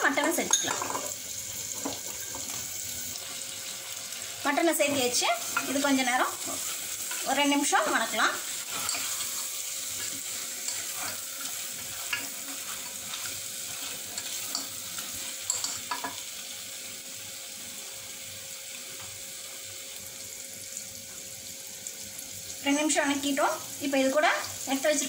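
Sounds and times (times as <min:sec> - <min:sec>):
meat sizzling in a pot: 0:00.0 - 0:25.0
spatula scraping a pot: 0:04.9 - 0:15.8.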